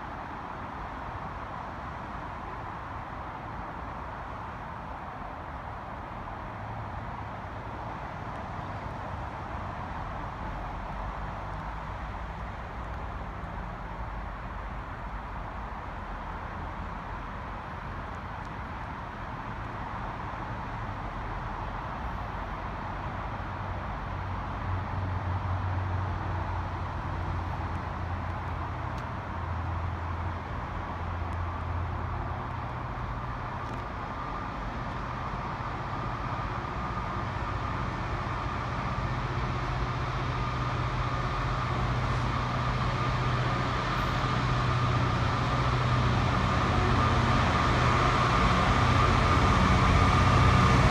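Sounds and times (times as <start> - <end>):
train rumbling and humming: 22.2 - 50.9.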